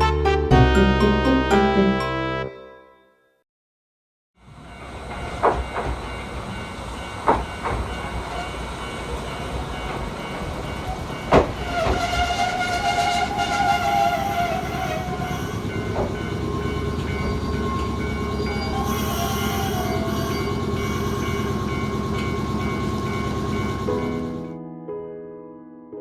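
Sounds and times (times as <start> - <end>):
piano music: 0.0 - 3.3, 4.6 - 26.0
electric train rumbling on rails: 4.4 - 24.6
high squealing whine: 11.6 - 24.4.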